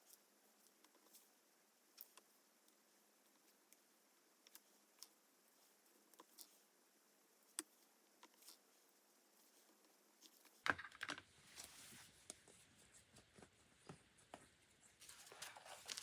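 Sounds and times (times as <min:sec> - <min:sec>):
paper rustling: 0:15.0 - 0:16.0.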